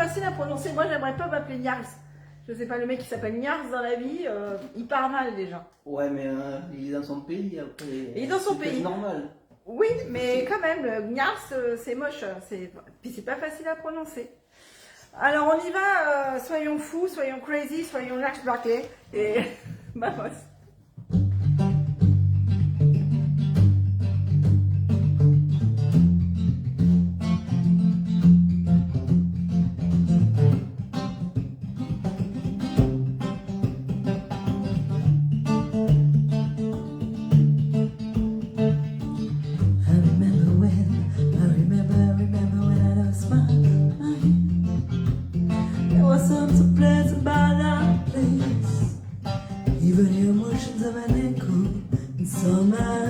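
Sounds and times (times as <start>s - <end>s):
guitar plucked chords: 0.0s - 2.3s, 21.0s - 53.0s
deep bass line: 21.1s - 30.8s, 34.8s - 49.0s.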